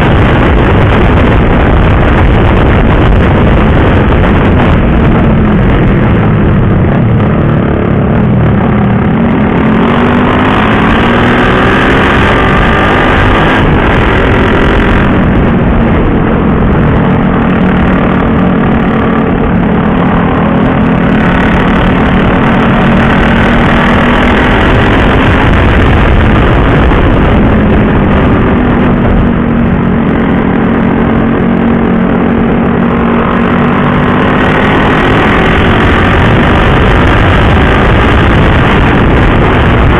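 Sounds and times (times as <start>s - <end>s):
motorcycle engine revving: 0.0s - 39.9s
wind rushing on microphone: 0.0s - 39.9s.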